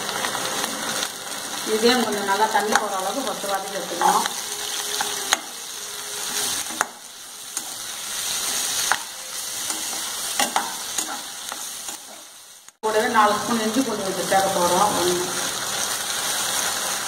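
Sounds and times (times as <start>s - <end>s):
vegetables sizzling in hot oil: 0.0s - 17.0s
metal spoon stirring and scraping: 6.2s - 12.3s.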